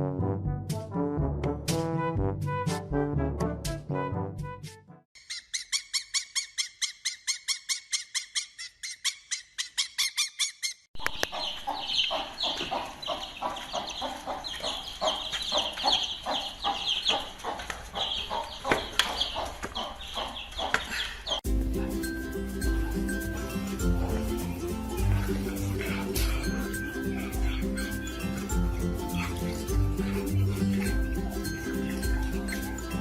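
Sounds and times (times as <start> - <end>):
fowl clucking and cheeping: 5.2 - 21.4.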